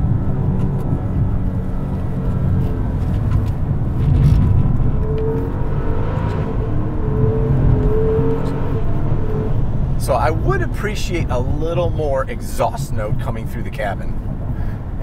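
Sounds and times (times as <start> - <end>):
car engine revving: 0.0 - 13.6.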